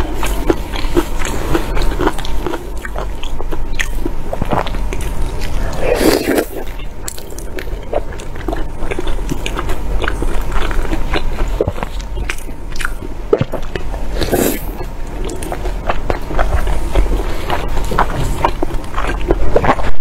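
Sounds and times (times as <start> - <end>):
wet chewing: 0.0 - 20.0
loud bite: 4.5 - 7.6.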